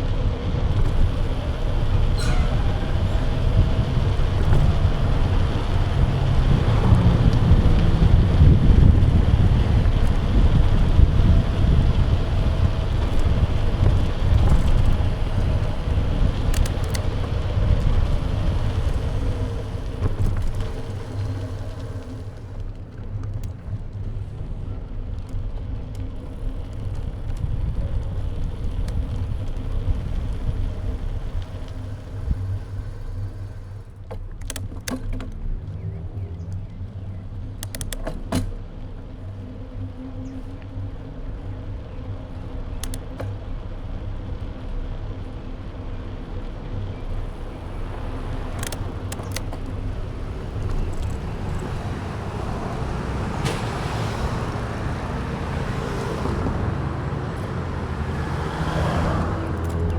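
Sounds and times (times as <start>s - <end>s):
wind buffeting microphone: 0.0s - 22.5s, 26.1s - 33.8s, 38.5s - 59.9s
tyre and road rumble: 0.0s - 59.9s
sharp clicks: 37.4s - 38.6s, 42.8s - 43.5s, 47.2s - 54.2s.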